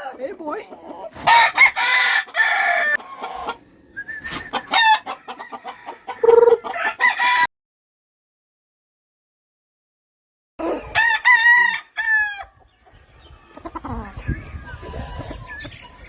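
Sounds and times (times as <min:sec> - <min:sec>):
chickens clucking: 0:00.0 - 0:07.5, 0:10.6 - 0:11.1, 0:12.4 - 0:16.0
roosters crowing: 0:00.5 - 0:07.5, 0:10.6 - 0:13.6.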